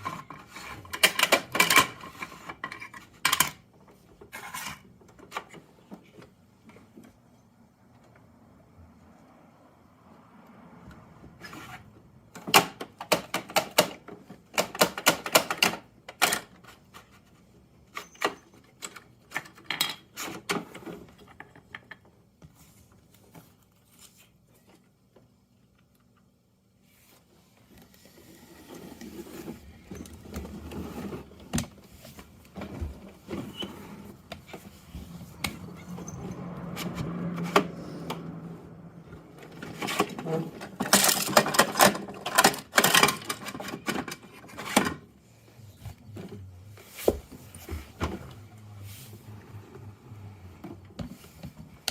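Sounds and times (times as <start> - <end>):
plastic toy clicks and clatter: 0.0 - 3.6, 12.5 - 16.6, 39.6 - 45.0
rough handling noise: 39.1 - 51.9.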